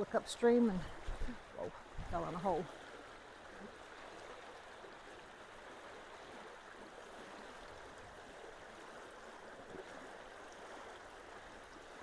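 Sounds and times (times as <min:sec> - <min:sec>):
creek water rushing into culvert: 0:00.0 - 0:12.0.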